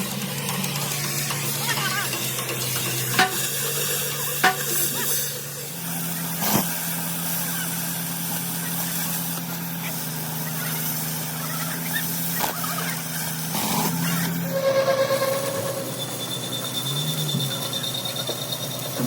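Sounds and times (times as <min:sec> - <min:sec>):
machine humming: 0:14.0 - 0:17.8.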